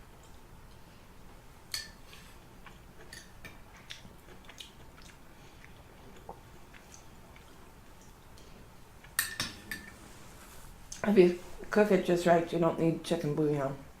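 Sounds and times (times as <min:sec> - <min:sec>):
person chewing soup: 0:00.2 - 0:09.2.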